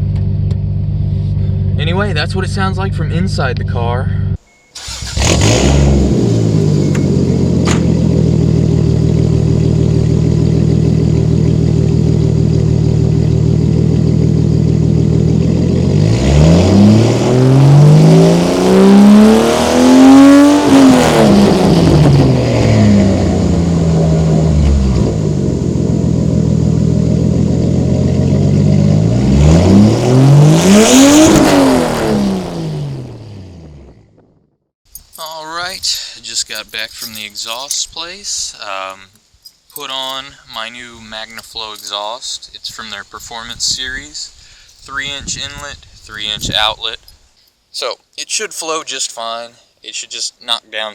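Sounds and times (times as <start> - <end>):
car engine idling: 0.0 - 17.8, 21.2 - 30.3
car engine revving: 0.0 - 34.4.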